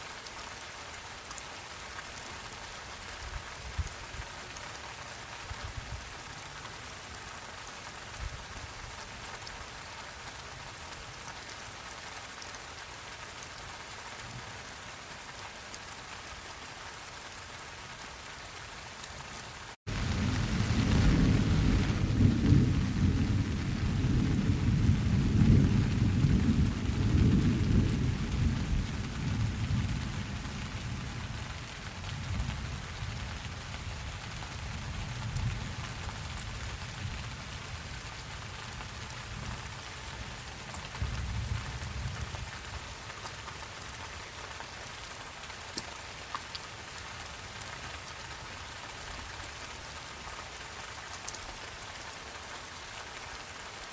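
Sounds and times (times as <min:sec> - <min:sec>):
steady rain falling: 0:00.0 - 0:53.9
thunder rolling: 0:19.9 - 0:30.0.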